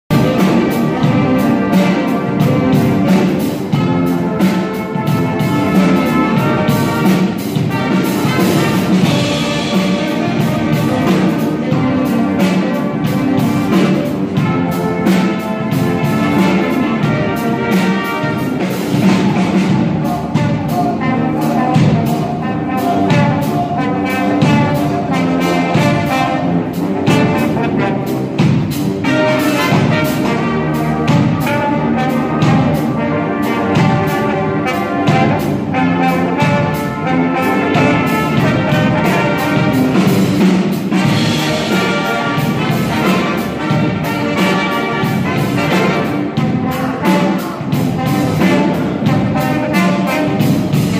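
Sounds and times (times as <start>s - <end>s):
brass band playing: 0.0s - 50.9s.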